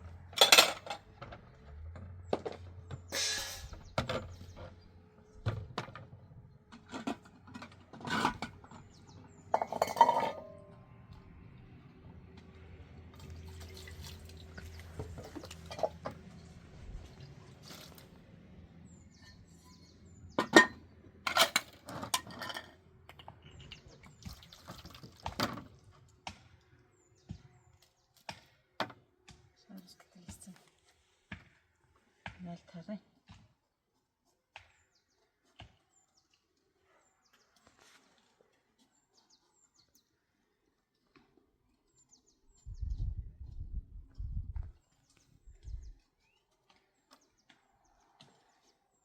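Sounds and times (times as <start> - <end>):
household knocks and clinks: 0.3 - 4.7, 5.4 - 10.7, 15.0 - 16.2, 20.4 - 23.8.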